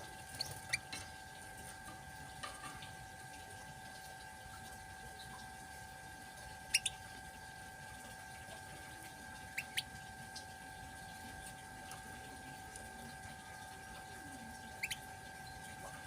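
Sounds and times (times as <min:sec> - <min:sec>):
faint steady hum: 0:00.0 - 0:16.0
running water: 0:00.0 - 0:16.0
canary chirping: 0:00.3 - 0:01.1, 0:06.6 - 0:07.0, 0:09.4 - 0:10.6, 0:14.6 - 0:15.7.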